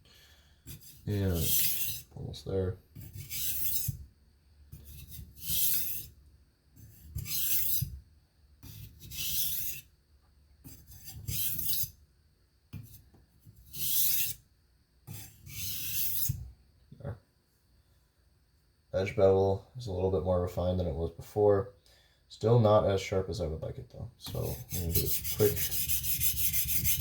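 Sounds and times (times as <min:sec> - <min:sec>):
knife rasping on whetstone: 0:00.7 - 0:02.1, 0:03.0 - 0:04.0, 0:04.7 - 0:06.2, 0:06.8 - 0:08.0, 0:08.6 - 0:09.9, 0:10.7 - 0:12.0, 0:13.6 - 0:14.4, 0:15.1 - 0:16.4, 0:24.3 - 0:27.0.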